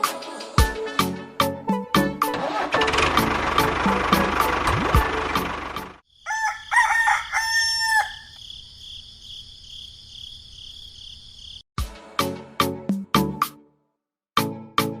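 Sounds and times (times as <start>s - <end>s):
busy music: 0.0s - 6.0s, 11.8s - 13.6s
rooster crowing: 6.1s - 9.0s.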